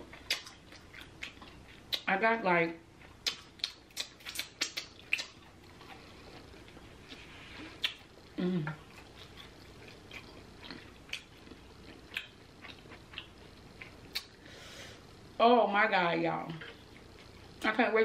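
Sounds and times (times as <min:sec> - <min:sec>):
wet chewing smacks and clicks: 0:00.1 - 0:02.1, 0:03.0 - 0:07.2, 0:07.8 - 0:08.1, 0:08.9 - 0:14.4.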